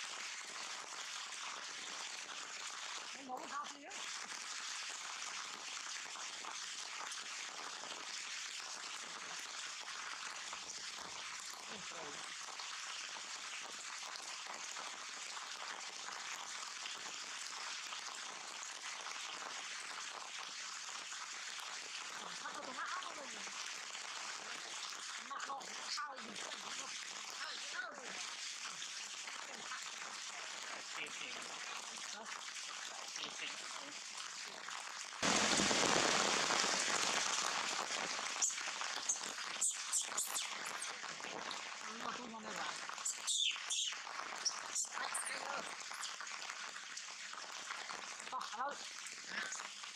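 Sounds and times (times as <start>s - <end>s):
heavy rain hissing: 11.6s - 12.4s, 21.7s - 49.9s
heavy rain falling: 35.2s - 39.1s.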